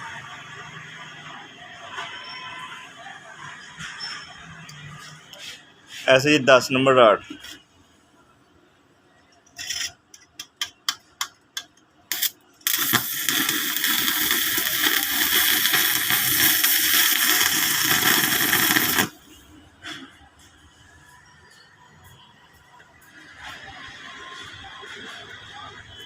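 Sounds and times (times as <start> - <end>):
welding arc crackling: 12.1 - 19.3.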